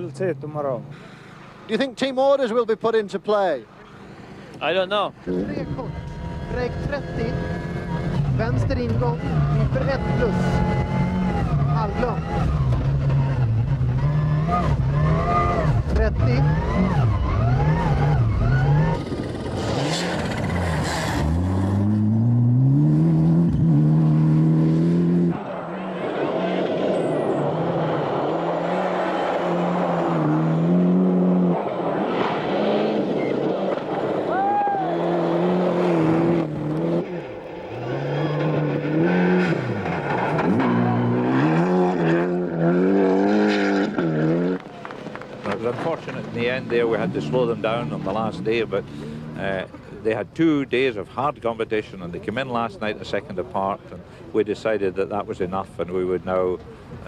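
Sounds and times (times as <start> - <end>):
rally car engine revving: 5.2 - 50.1.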